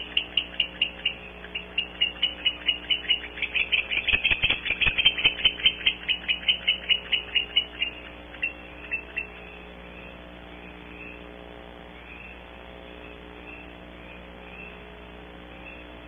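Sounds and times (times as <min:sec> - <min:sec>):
barn owls twittering: 0:00.0 - 0:11.2, 0:13.0 - 0:14.8.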